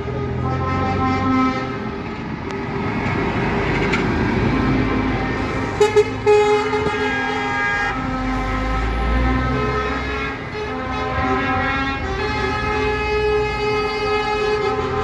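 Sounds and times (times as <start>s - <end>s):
truck air horn blasts: 0.0s - 1.9s, 5.0s - 15.0s
truck engine noise: 0.0s - 15.0s.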